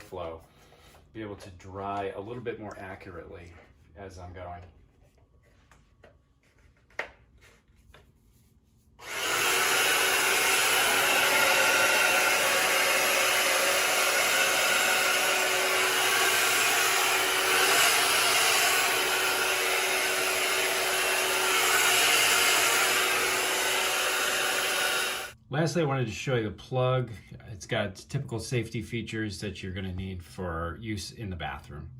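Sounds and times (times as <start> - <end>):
hair dryer blowing: 9.0 - 25.4.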